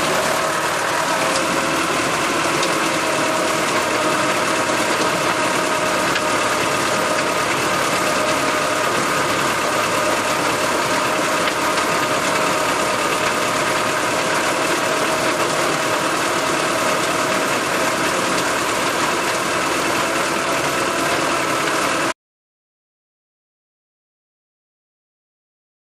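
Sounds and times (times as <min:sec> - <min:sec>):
steady whine: 0:00.0 - 0:21.8
tractor engine running: 0:00.0 - 0:22.2.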